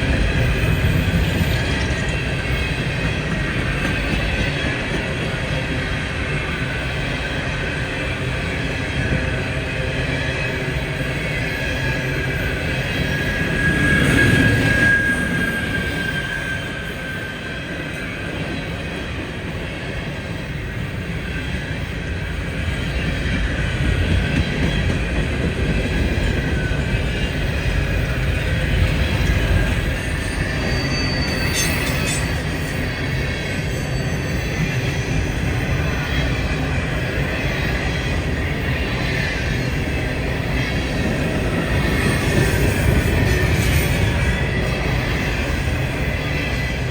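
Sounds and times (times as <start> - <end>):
train wheels rumbling on rail: 0.0 - 46.9
high wheel squeal: 9.0 - 18.7, 26.5 - 46.9.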